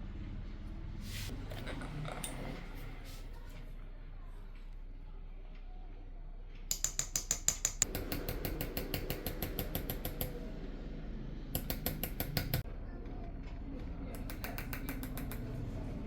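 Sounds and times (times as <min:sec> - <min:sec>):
small hammer tapping engraving chisel: 0:06.7 - 0:10.4, 0:11.6 - 0:12.6, 0:14.2 - 0:15.5.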